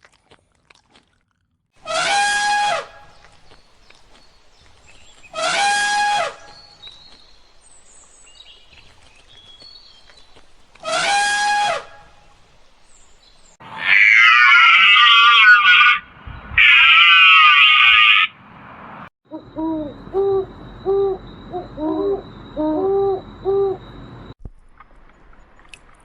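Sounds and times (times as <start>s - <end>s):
long harsh animal calls: 13.6s - 18.4s
animal call falling in pitch: 13.7s - 16.0s, 16.6s - 18.3s.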